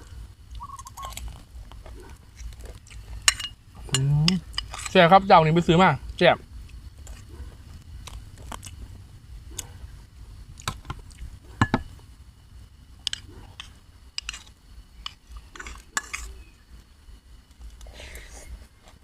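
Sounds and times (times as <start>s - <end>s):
person chewing food: 0.5s - 4.9s, 6.6s - 8.9s.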